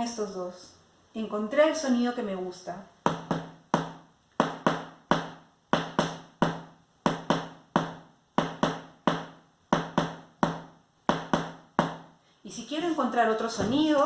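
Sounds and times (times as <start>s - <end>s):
spoon beating on a book: 3.0s - 12.2s.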